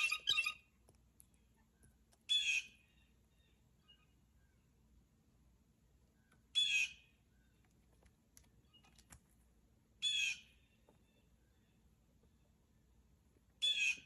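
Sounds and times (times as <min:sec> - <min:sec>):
blue jay harsh calls: 0:00.0 - 0:00.6, 0:02.3 - 0:04.1, 0:06.5 - 0:07.1, 0:10.0 - 0:10.7, 0:13.6 - 0:14.0.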